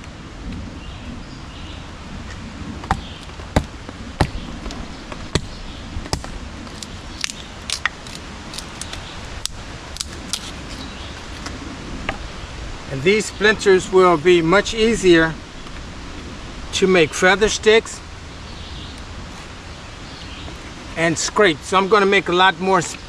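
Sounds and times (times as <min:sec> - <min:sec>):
background hiss: 0:00.0 - 0:23.0
knife splitting wood: 0:02.8 - 0:11.5.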